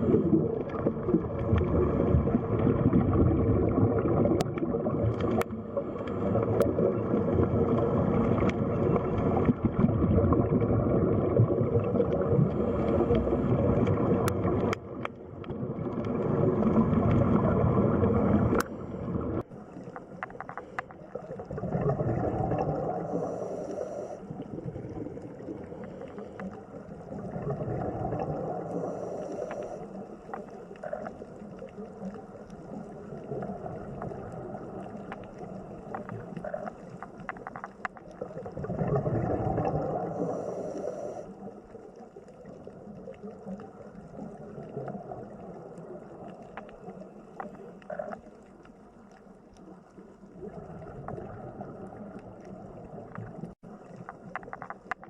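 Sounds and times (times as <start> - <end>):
underwater gurgling: 0.0 - 55.0
small clicks: 18.5 - 18.7, 19.7 - 21.2, 29.2 - 38.4, 53.0 - 55.0.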